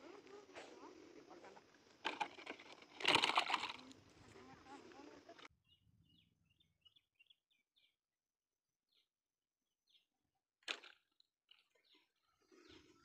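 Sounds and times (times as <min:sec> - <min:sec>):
faint bird chirps: 0:03.8 - 0:08.0, 0:11.5 - 0:13.0.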